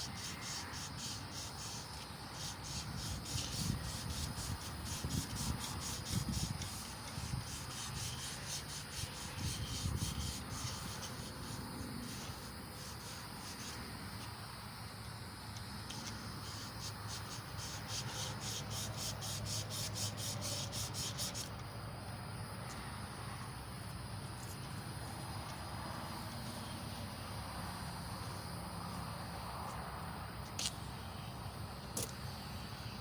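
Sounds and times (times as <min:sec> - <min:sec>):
soft steady rubbing: 0:00.0 - 0:14.4.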